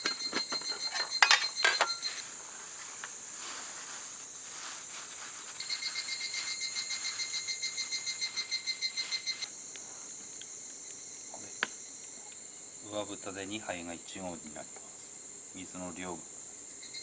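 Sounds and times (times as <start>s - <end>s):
metal cookware clatter: 0.0s - 2.3s
insect rapid pulsing call: 0.0s - 17.0s
insects chirping: 0.0s - 17.0s.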